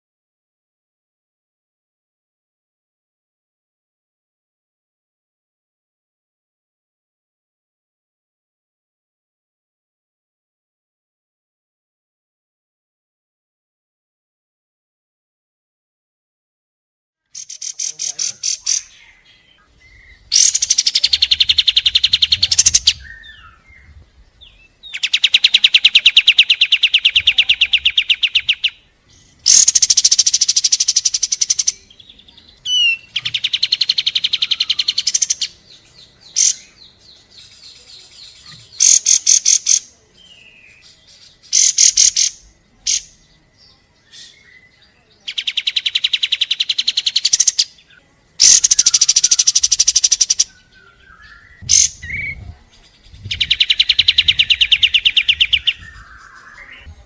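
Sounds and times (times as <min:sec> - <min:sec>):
single bird calls: 0:17.3 - 0:23.6, 0:24.8 - 0:31.7, 0:32.6 - 0:35.6, 0:38.3 - 0:39.8, 0:41.5 - 0:43.1, 0:45.3 - 0:52.4
songbird singing rapid notes: 0:17.3 - 0:57.0.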